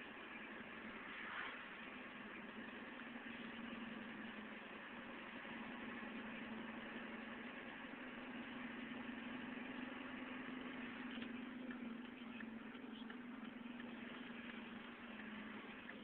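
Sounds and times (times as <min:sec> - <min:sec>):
faint truck engine hum: 0:00.0 - 0:16.0.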